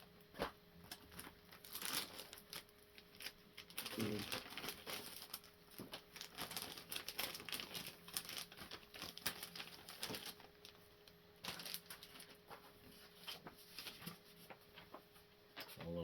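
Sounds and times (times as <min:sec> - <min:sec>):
plastic and paper crinkling: 0:00.0 - 0:16.0.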